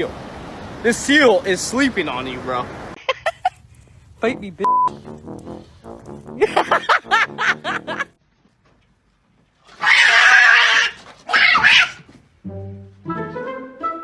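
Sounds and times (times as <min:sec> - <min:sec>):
animal calling: 0:09.7 - 0:12.0
loud harsh animal cries: 0:09.7 - 0:12.1.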